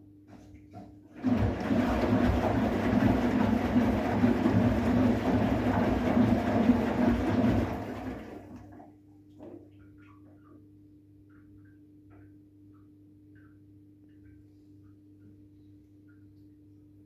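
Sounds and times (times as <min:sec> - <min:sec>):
washing machine rushing rumble: 0:01.1 - 0:08.9.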